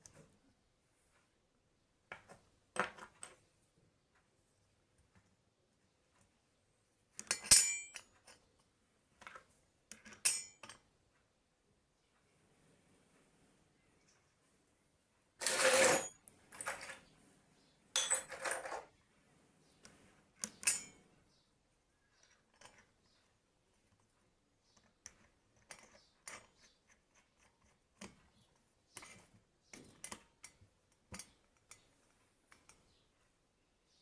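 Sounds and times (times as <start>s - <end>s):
metal tools scraping and clattering: 7.3s - 8.0s, 15.4s - 17.1s, 18.0s - 18.9s, 20.6s - 21.0s.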